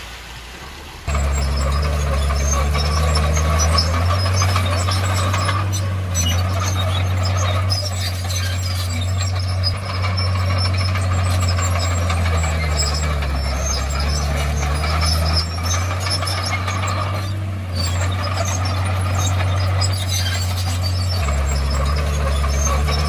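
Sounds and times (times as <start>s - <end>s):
bulldozer diesel engine droning: 0.0s - 23.0s.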